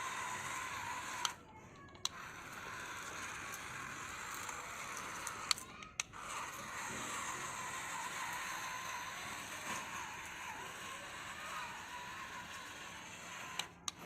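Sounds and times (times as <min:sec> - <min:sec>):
small motor whirring: 0:00.0 - 0:14.0.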